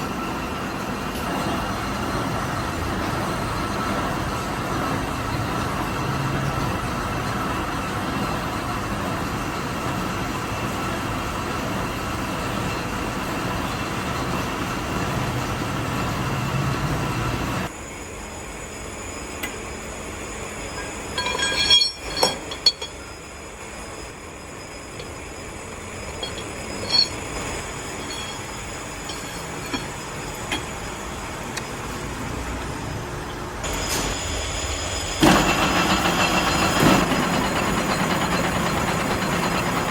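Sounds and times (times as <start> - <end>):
machinery running with metallic whine: 0.0 - 39.9
sharp metal clinks: 20.7 - 23.3, 23.9 - 31.0.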